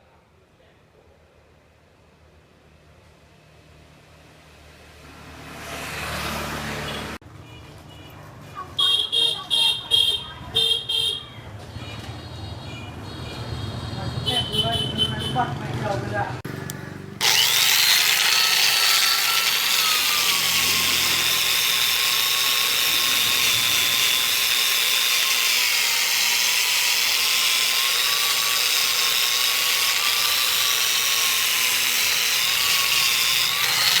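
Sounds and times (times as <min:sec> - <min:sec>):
angle grinder whining: 0:16.6 - 0:34.0.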